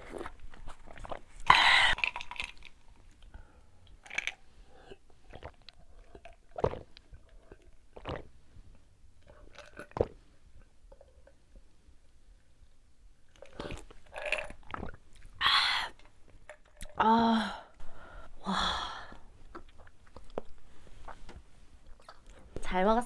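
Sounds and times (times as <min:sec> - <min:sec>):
chewing and biting food: 0:04.0 - 0:08.3, 0:21.8 - 0:22.5
wet mouth clicks: 0:05.2 - 0:08.3.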